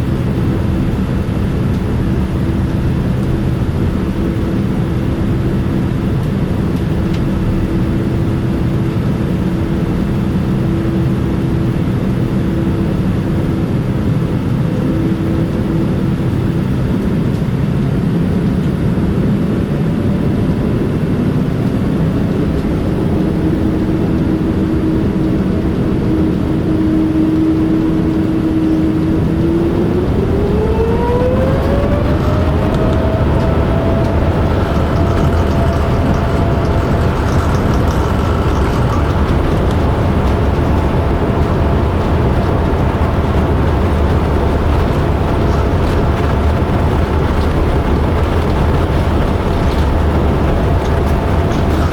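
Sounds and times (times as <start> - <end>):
jet engines humming: 0.0 - 51.9
cabin noise: 30.3 - 51.9.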